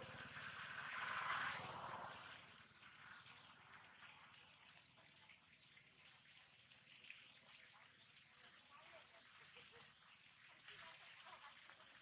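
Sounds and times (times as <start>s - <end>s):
steady rain hiss: 0.0s - 3.5s.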